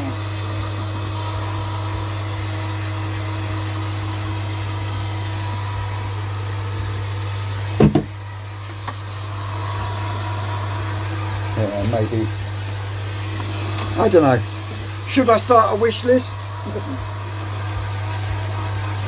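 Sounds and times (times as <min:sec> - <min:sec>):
air pump buzzing: 0:00.0 - 0:19.0
sharp knocks: 0:07.8 - 0:08.2.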